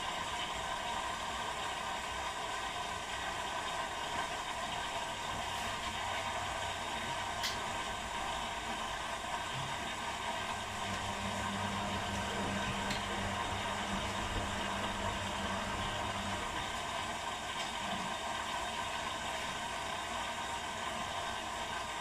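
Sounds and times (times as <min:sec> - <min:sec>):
washing machines whirring: 0:00.0 - 0:22.0
low motor hum: 0:05.7 - 0:18.1.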